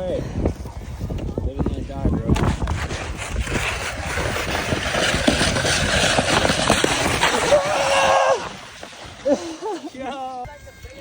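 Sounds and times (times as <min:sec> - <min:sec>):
wind rush on microphone: 0:00.0 - 0:09.4
snowskate scraping on icy snow: 0:02.1 - 0:10.4.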